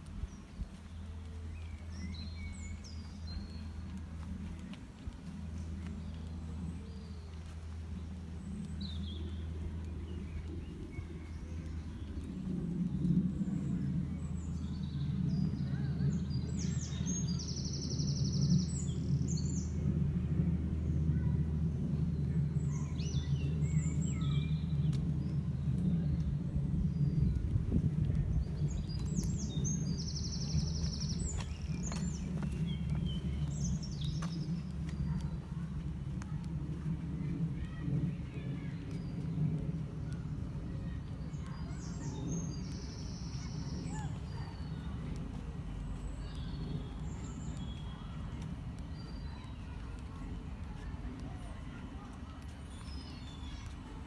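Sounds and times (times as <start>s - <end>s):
steady low rumble: 0.0s - 54.0s
small songbird singing: 13.6s - 19.8s, 22.4s - 35.4s, 40.1s - 50.1s.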